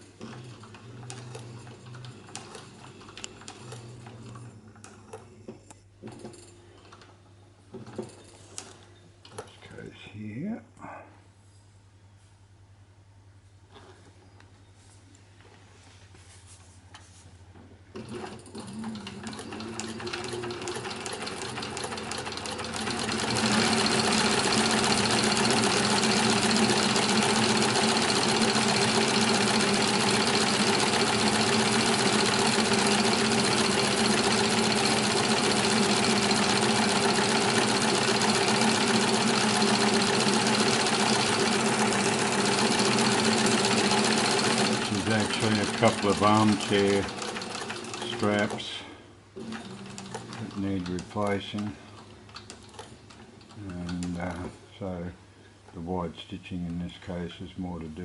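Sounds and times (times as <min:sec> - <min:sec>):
sewing machine stitching: 0:00.0 - 0:05.2, 0:17.9 - 0:48.7, 0:49.4 - 0:54.5
faint motor hum: 0:00.0 - 0:58.0.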